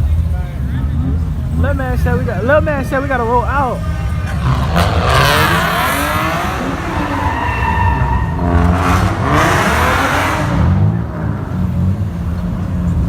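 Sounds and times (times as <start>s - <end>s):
engines rumbling: 0.0s - 13.0s
car tires squealing: 3.4s - 13.0s.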